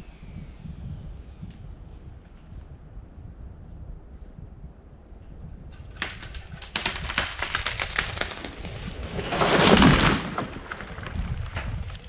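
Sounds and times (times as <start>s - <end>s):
tree cracking and snapping: 5.8s - 12.0s
tree crashing to the ground: 6.0s - 12.0s.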